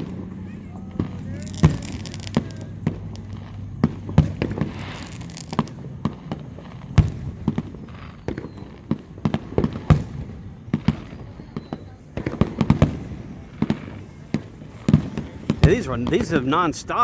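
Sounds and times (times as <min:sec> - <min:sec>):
fireworks bangs: 0:00.0 - 0:17.0
fireworks crackling hiss: 0:00.0 - 0:17.0.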